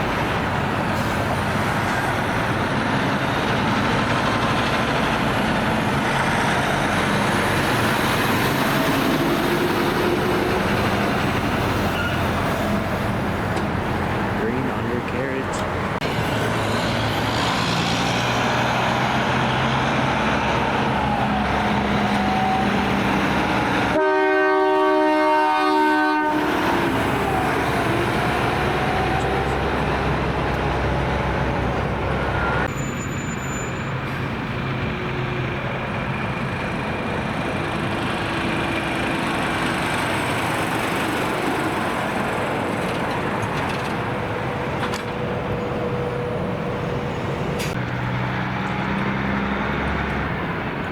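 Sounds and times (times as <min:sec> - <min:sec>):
diesel truck engines: 0:00.0 - 0:50.9
traffic noise: 0:00.0 - 0:50.9
train horn chord: 0:23.9 - 0:26.6.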